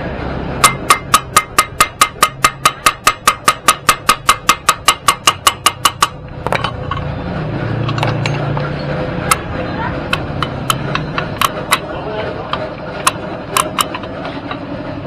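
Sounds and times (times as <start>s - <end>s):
hammer striking metal: 0.6s - 7.2s, 7.8s - 11.9s.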